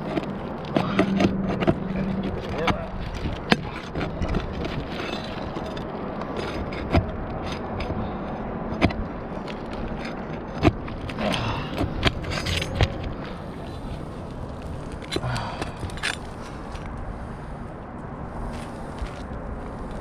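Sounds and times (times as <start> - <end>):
sharp metal knocks: 0.0 - 8.0
metal tool scraping shingles: 0.0 - 14.1.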